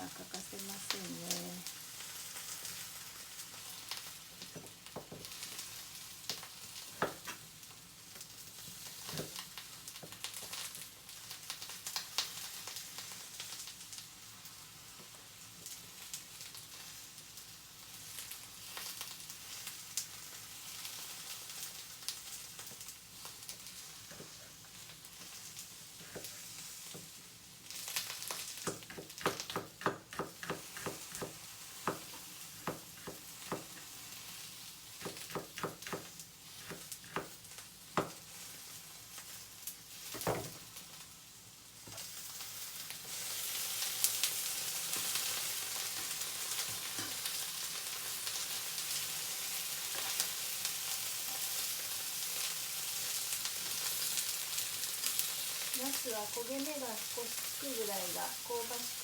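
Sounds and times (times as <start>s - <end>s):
food sizzling in oil: 0.0s - 59.0s.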